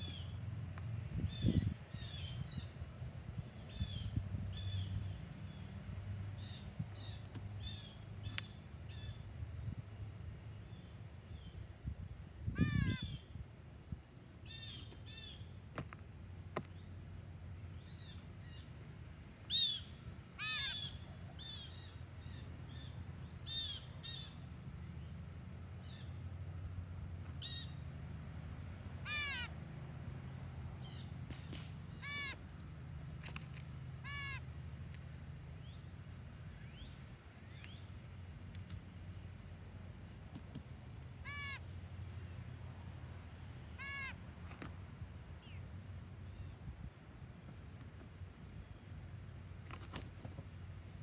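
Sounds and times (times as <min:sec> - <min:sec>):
birds calling: 0:00.0 - 0:00.4, 0:01.2 - 0:02.8, 0:14.4 - 0:17.0, 0:17.7 - 0:25.2, 0:27.2 - 0:27.9, 0:29.0 - 0:29.6, 0:30.7 - 0:34.8, 0:40.4 - 0:42.5, 0:43.2 - 0:44.7.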